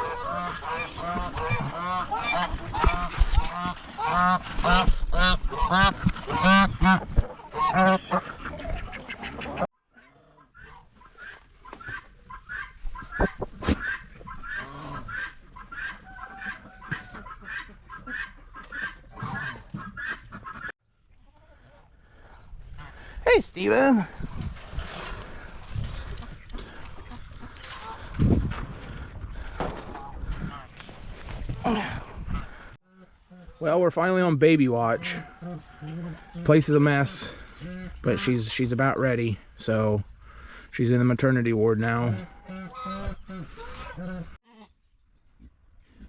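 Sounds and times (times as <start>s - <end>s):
geese honking: 0.0s - 20.7s, 41.8s - 44.4s.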